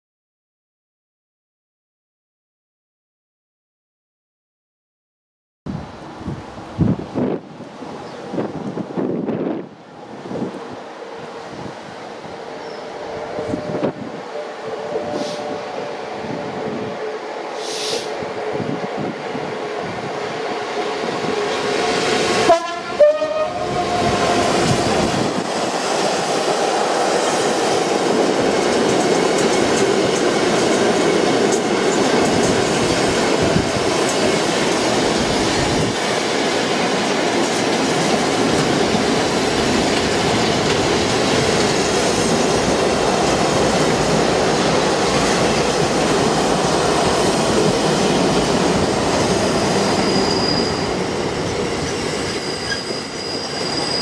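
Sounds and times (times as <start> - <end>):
locomotive horn blasts: 12.6 - 17.3, 22.4 - 24.3
train wheel clatter: 24.0 - 54.0.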